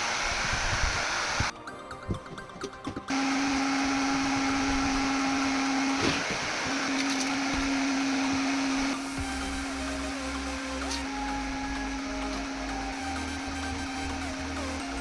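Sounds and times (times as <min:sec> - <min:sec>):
electric fan motor humming: 0:00.0 - 0:15.0.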